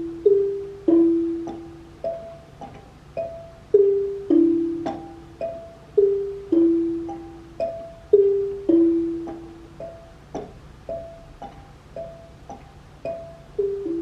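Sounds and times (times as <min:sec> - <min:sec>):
xylophone two-note call: 0:13.1 - 0:14.0.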